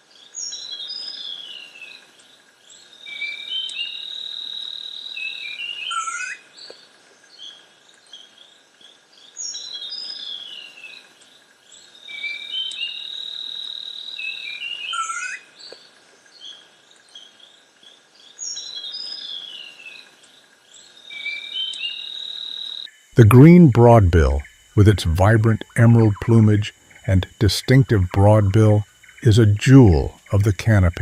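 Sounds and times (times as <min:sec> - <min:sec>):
faint insect drone: 0:00.0 - 0:31.0
high insect buzz: 0:18.3 - 0:31.0.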